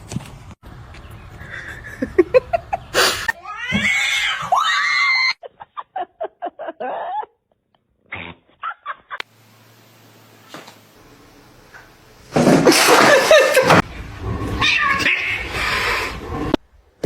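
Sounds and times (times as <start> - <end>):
cats meowing and yowling: 3.4 - 5.4, 14.5 - 16.2.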